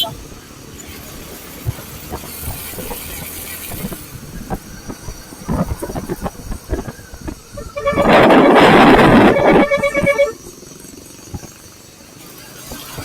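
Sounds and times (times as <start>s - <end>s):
wind buffeting microphone: 0.0s - 10.4s
loud horn blast: 7.6s - 10.4s.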